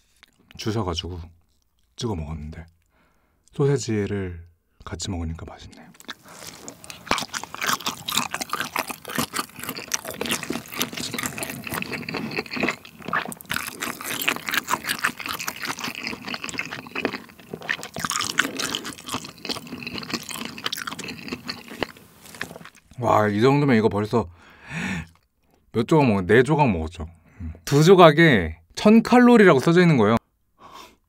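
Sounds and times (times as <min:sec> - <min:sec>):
wet chewing: 0:05.9 - 0:23.0.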